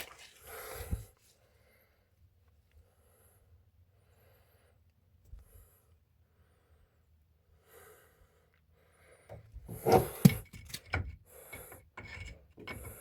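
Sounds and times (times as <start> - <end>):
knocks and clunks of metal parts: 9.7 - 13.0.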